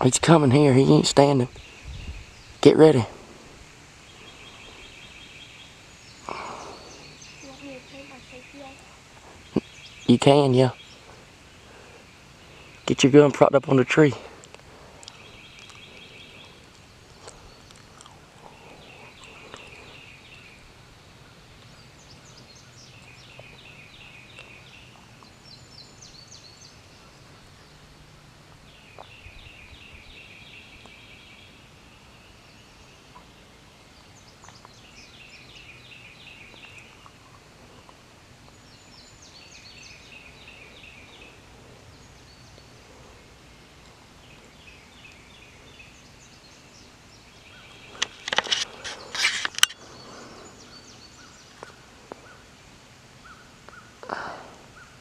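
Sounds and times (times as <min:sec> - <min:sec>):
songbird trilling: 0:04.0 - 0:13.6.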